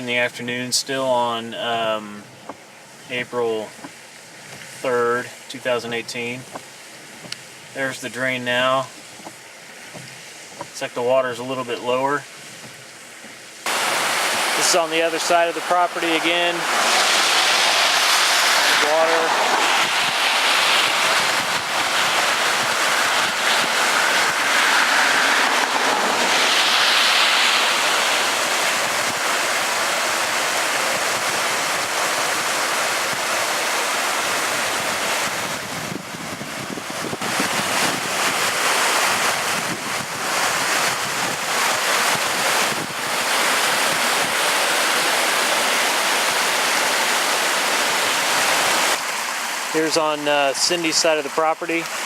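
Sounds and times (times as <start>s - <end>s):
stormwater rushing through culvert: 0.0s - 52.0s
wind on microphone: 16.6s - 45.8s.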